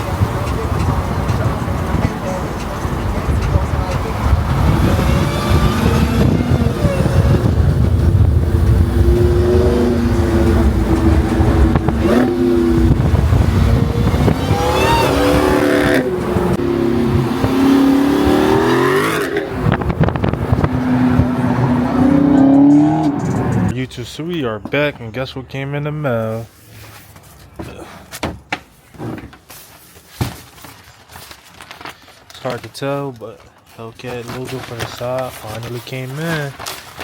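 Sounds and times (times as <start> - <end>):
car engine accelerating: 0.0 - 23.8.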